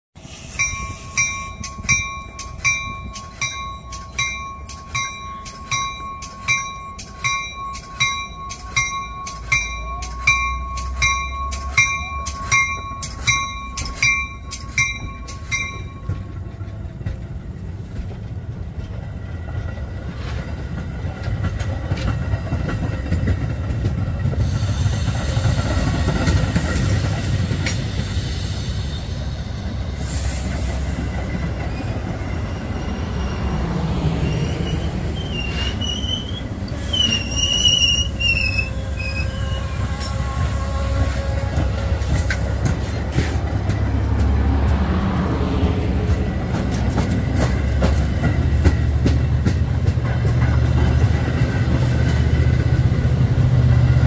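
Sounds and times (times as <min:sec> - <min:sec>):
wheels squealing on rails: 0:00.2 - 0:16.9, 0:19.2 - 0:54.0
train passing: 0:00.2 - 0:54.0
railway crossing bell ringing: 0:00.3 - 0:16.6, 0:31.2 - 0:43.8.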